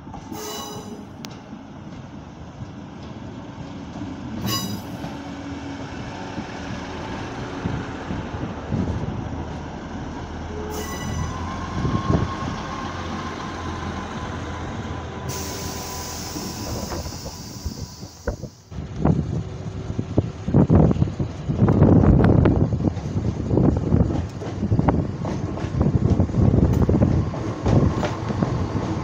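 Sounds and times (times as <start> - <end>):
diesel train engine humming: 0.0 - 29.0
wheel and rail noise: 0.0 - 29.0
hiss: 15.3 - 18.6.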